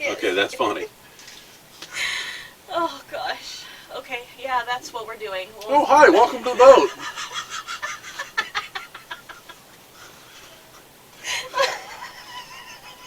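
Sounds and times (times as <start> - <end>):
woman giggling: 6.1 - 9.6, 11.2 - 13.0.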